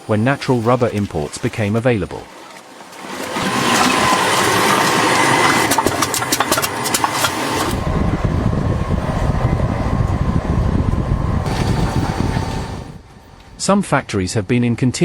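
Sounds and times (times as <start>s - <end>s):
machinery hissing: 0.0s - 2.0s
machinery droning: 0.0s - 15.0s.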